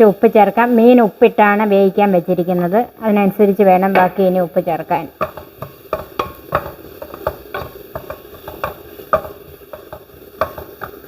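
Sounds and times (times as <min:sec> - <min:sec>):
low sizzle of frying: 0:00.0 - 0:11.0
utensil knocking and scraping pan: 0:03.9 - 0:04.3, 0:05.2 - 0:11.0.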